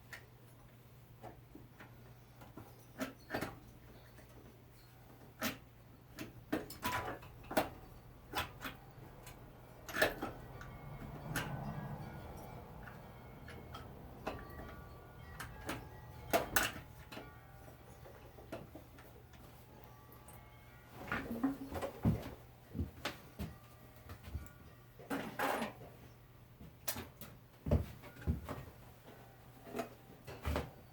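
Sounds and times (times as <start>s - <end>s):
faint steady hum: 0.0s - 30.9s
hand tools clicking and knocking: 5.2s - 19.6s.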